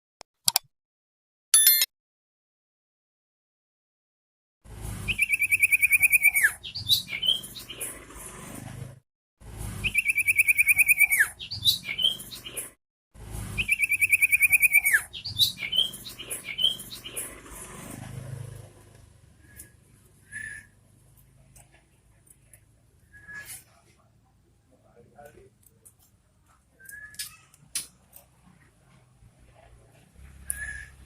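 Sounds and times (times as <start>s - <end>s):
bird trilling: 5.1s - 7.8s, 13.6s - 17.3s
bird chirps: 5.1s - 7.9s, 9.8s - 12.7s, 13.6s - 17.3s, 30.4s - 31.0s.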